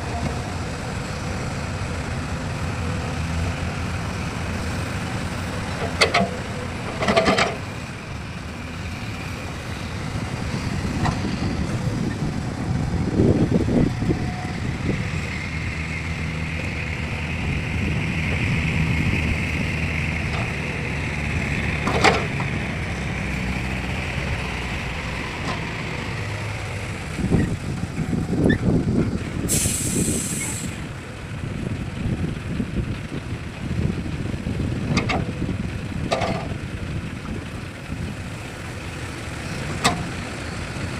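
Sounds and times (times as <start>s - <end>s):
truck engine running: 0.0s - 40.9s
high air hiss: 29.5s - 30.8s.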